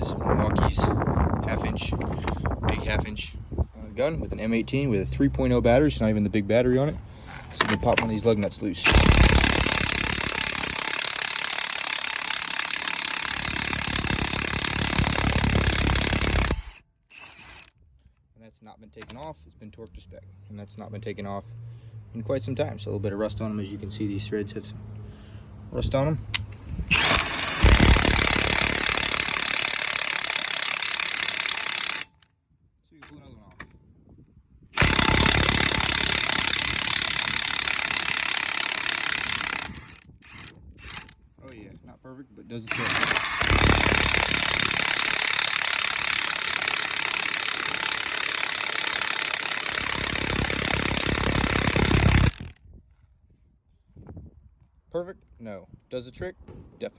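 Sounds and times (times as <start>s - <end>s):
impact wrench hammering: 7.5s - 17.7s, 26.9s - 32.2s, 34.8s - 41.1s, 42.7s - 52.5s.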